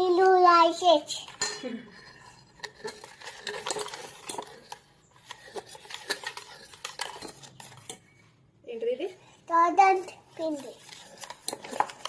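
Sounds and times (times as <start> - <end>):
cutlery clinking against bowl: 1.3 - 8.2.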